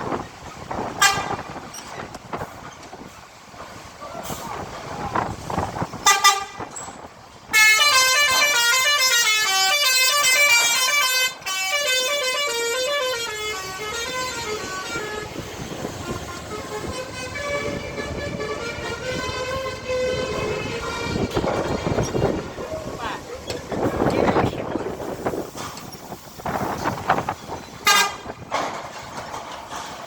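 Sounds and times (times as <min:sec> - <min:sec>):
musical vehicle horn melody: 0:01.0 - 0:01.6, 0:06.0 - 0:06.7, 0:07.5 - 0:22.5, 0:27.8 - 0:28.3.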